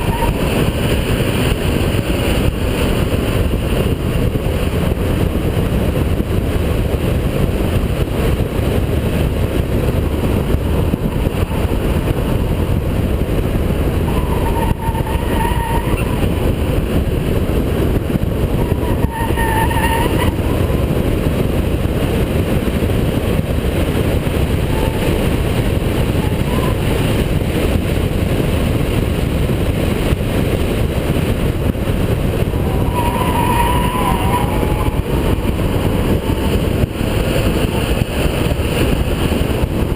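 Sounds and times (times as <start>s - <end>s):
high-pitched squeals: 0.0s - 0.9s, 14.0s - 16.4s, 18.5s - 20.7s, 24.6s - 25.3s, 32.4s - 38.0s
car engine driven hard: 0.0s - 39.9s
road noise: 0.0s - 39.9s.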